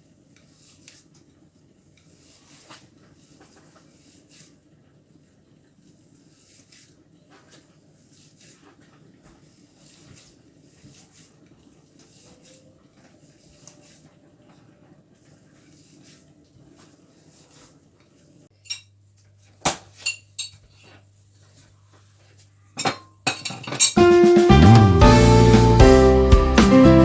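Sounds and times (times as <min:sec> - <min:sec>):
utensils clinking against dishes: 0:18.6 - 0:18.9, 0:20.0 - 0:20.9, 0:22.8 - 0:24.0.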